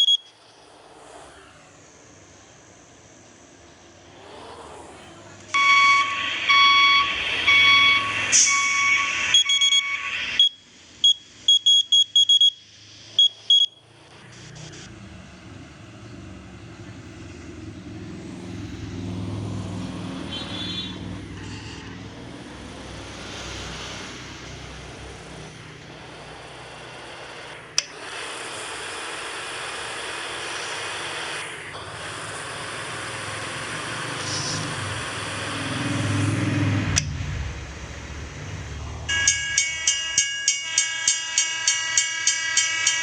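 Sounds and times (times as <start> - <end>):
vehicles driving past: 0.5 - 9.7, 13.9 - 27.8, 31.3 - 40.6.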